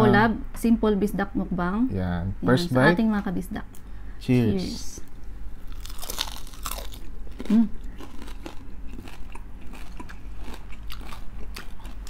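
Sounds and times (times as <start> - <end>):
crunching and chewing crispy food: 5.6 - 12.0.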